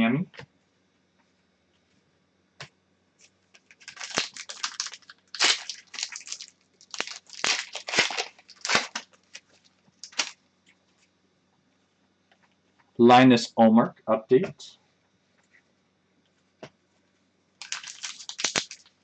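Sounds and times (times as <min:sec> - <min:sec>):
wrapper tearing and crinkling: 0:03.5 - 0:10.4, 0:17.6 - 0:19.0.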